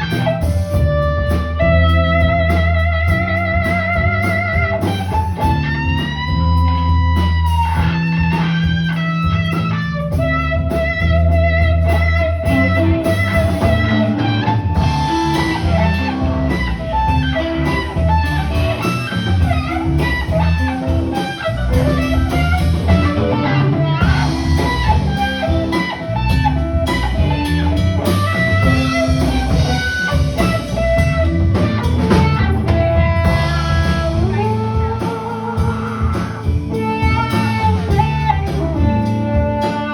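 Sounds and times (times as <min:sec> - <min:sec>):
blues band playing: 0:00.0 - 0:39.9
electric guitar lead: 0:00.0 - 0:39.9.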